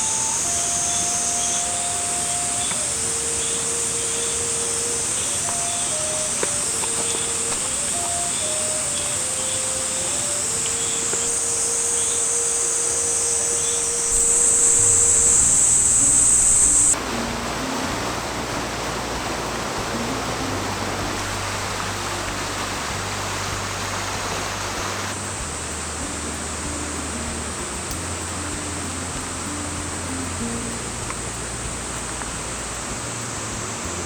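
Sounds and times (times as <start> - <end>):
cicadas buzzing: 0.0 - 34.0
soft slow background music: 0.0 - 34.0
steady rushing hiss: 0.0 - 34.0.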